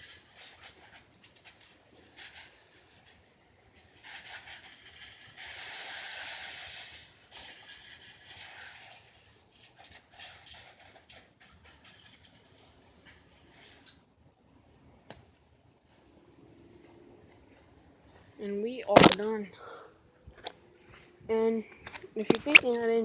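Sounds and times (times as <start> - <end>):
hose spraying water: 0.0 - 14.1.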